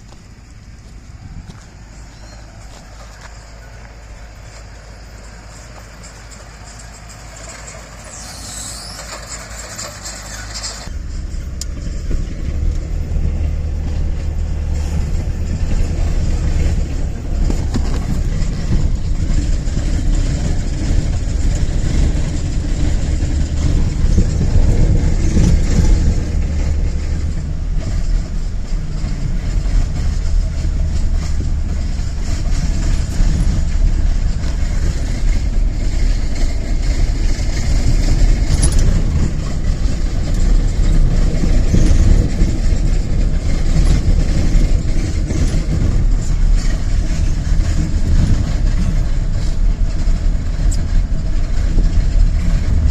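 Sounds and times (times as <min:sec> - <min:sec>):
vehicle engine rumble: 0:00.0 - 0:52.9
brief high squeal: 0:02.1 - 0:02.5, 0:07.7 - 0:10.9.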